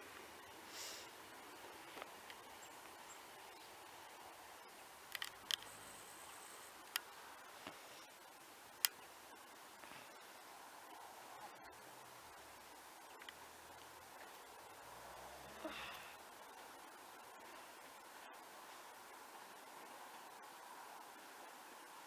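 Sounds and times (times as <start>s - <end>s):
faint background hiss: 0.0s - 22.0s
sharp clicks: 5.1s - 6.0s.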